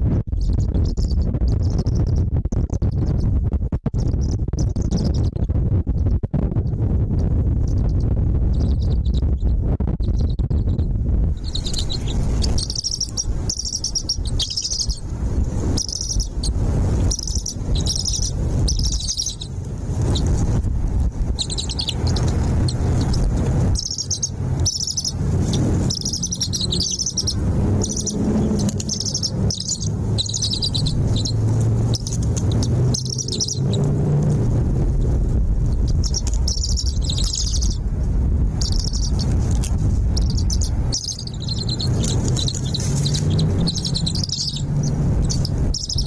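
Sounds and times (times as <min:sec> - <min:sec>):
steady low rumble: 0:00.0 - 0:46.0
small birds chirping: 0:00.3 - 0:03.3, 0:04.0 - 0:06.2, 0:07.6 - 0:10.8, 0:11.4 - 0:34.0, 0:35.7 - 0:37.8, 0:38.5 - 0:46.0.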